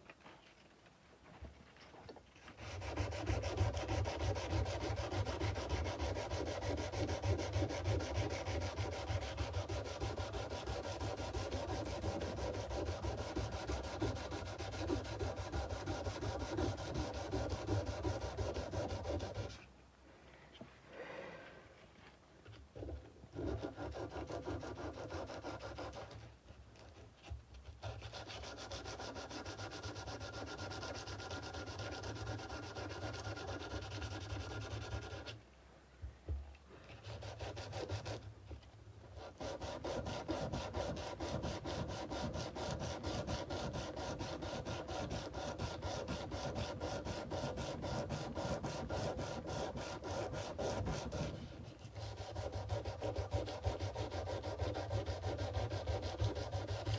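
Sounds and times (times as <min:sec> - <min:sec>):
sandpaper rubbing a steel blade: 0:02.6 - 0:19.6, 0:23.4 - 0:26.2, 0:27.8 - 0:35.4, 0:37.0 - 0:38.2, 0:39.2 - 0:56.9.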